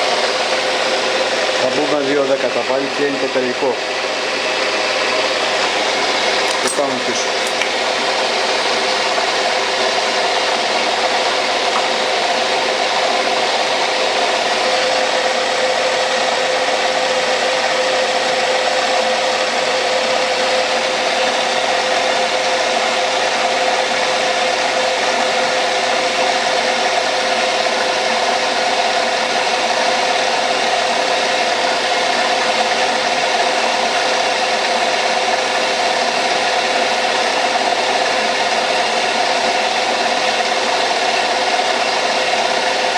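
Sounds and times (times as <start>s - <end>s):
metal lathe humming: 0.0s - 42.9s.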